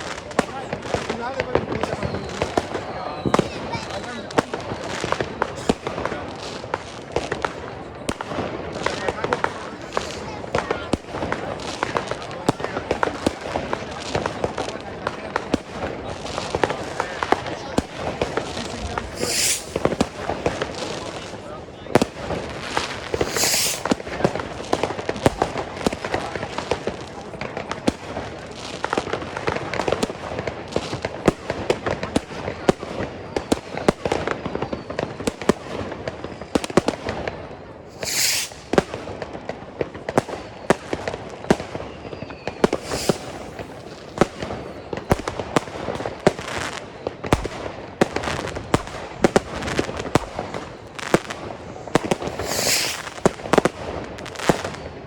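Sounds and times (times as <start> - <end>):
fireworks bangs and crackles: 0.0 - 55.0
short hissing bursts: 18.7 - 20.1, 23.1 - 24.0, 37.9 - 38.7, 42.7 - 44.0, 52.2 - 53.2.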